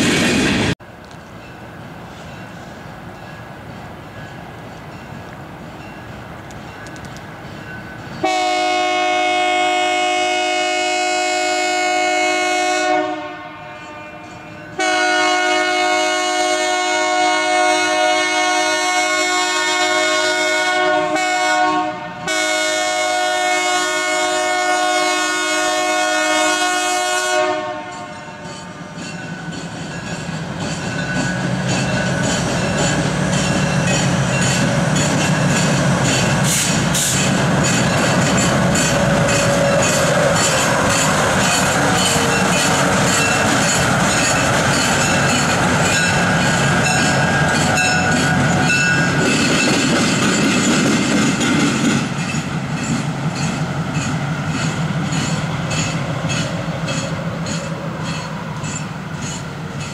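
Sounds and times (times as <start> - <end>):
freight train rumble: 0.0 - 59.9
train wheels clicking over rail joints: 4.2 - 8.3, 27.9 - 59.9
locomotive horn blast: 8.2 - 28.9.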